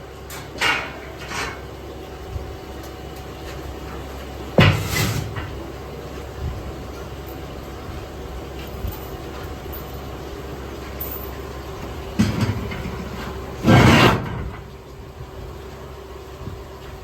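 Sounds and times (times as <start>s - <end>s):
steady low hum: 4.4s - 17.0s.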